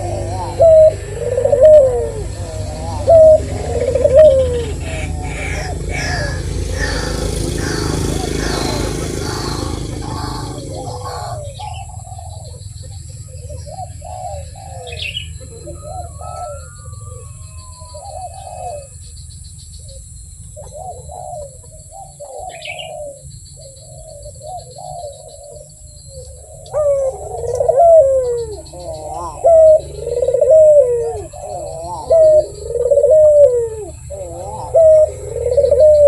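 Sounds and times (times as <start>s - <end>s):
high bird chirps: 0.0s - 21.2s
dove cooing: 0.0s - 36.0s.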